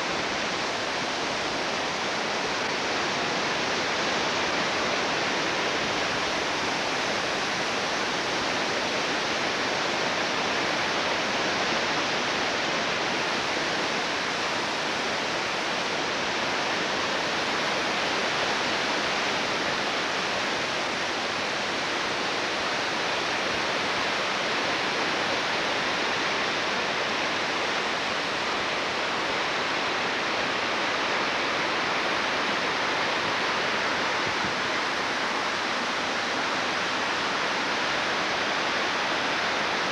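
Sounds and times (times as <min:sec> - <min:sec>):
fast water rushing: 0:00.0 - 0:39.9.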